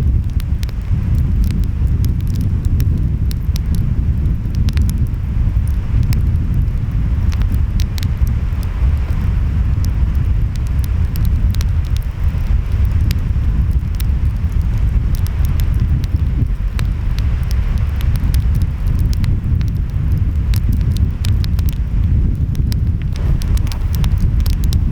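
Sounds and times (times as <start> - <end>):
wind: 0.0 - 24.9
wood fire crackling and popping: 0.0 - 24.9.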